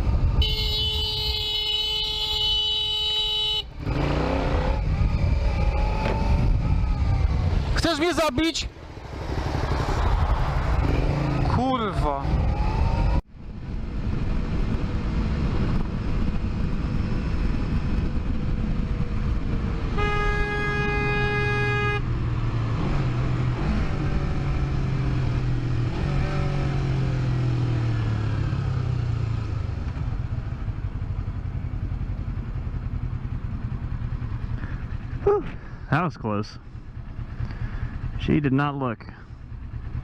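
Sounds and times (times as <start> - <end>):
motorcycle engine: 0.0 - 40.0
road noise rushing: 3.3 - 40.0
horn blast: 19.9 - 22.1.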